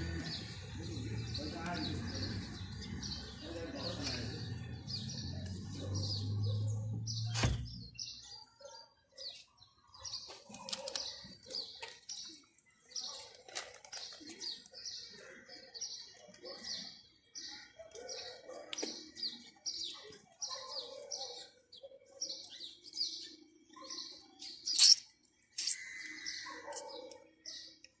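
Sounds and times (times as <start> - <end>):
small bird chirping: 22.4 - 27.8.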